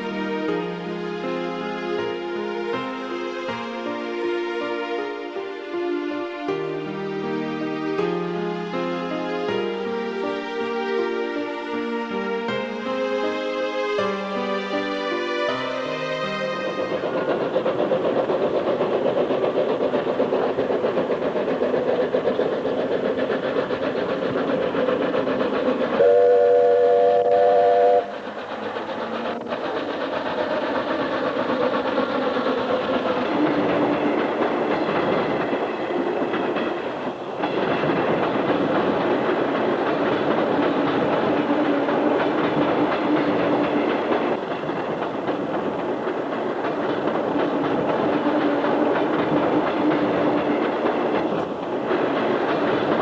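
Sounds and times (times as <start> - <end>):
train wheels rumbling on rails: 15.5 - 53.0
train horn: 26.0 - 28.4.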